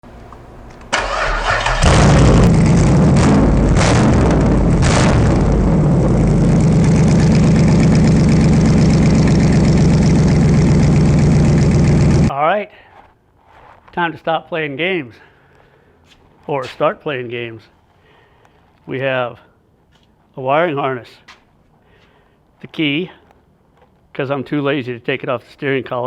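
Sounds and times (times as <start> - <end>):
car engine starting and revving: 0.8 - 12.3.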